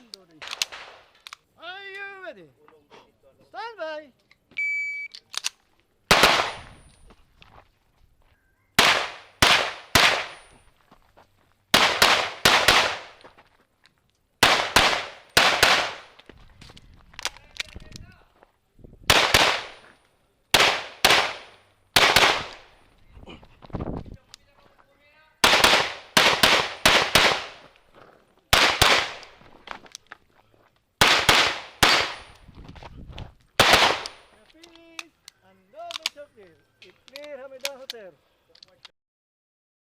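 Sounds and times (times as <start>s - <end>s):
handgun shots: 5.3s - 6.8s, 8.8s - 10.5s, 11.8s - 13.2s, 19.1s - 19.8s, 20.6s - 22.7s, 25.4s - 27.6s, 31.0s - 32.4s, 33.6s - 34.2s.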